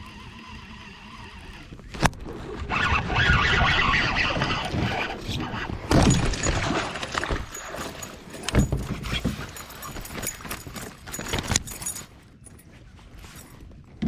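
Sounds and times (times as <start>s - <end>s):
gear knocking and rattling: 4.8s - 12.6s.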